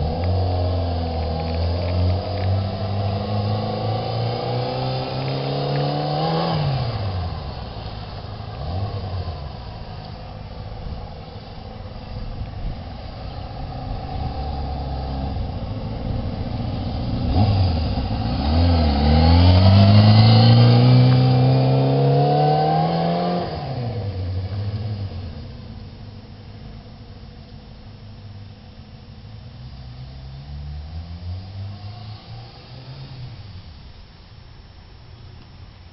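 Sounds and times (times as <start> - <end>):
motorcycle engine revving: 0.0 - 25.7.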